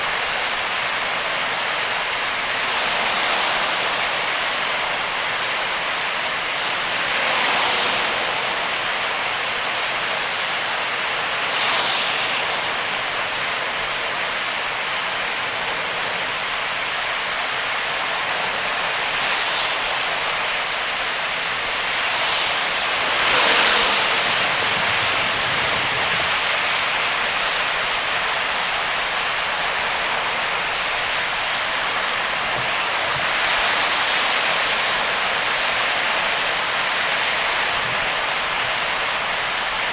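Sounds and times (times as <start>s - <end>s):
heavy rain and tyre spray hiss: 0.0s - 39.9s
passing vehicle whooshes: 21.1s - 27.5s.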